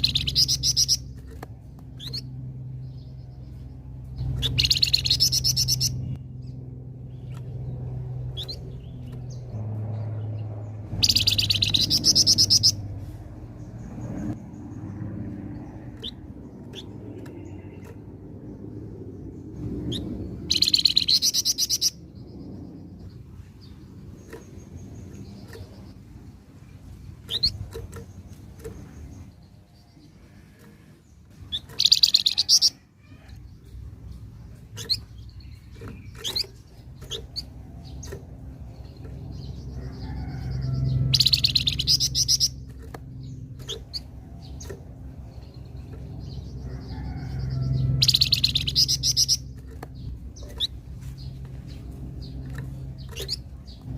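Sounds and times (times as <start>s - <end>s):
bird buzzy chattering song: 0.0s - 53.9s
low hum: 0.0s - 53.9s
soft bird chirps: 0.0s - 53.9s.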